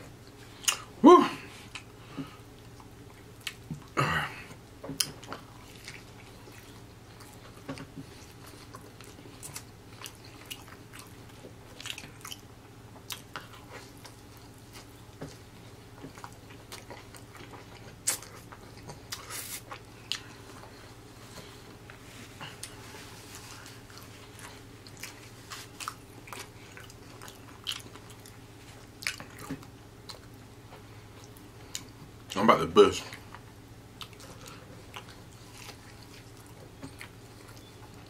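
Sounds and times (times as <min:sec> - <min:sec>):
person chewing fried chicken: 0:00.0 - 0:32.4, 0:33.0 - 0:38.0.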